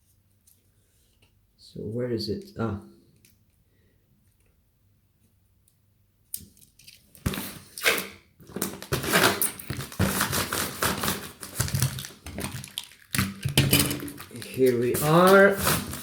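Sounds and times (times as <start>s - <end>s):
packing materials crinkling: 7.2s - 16.0s.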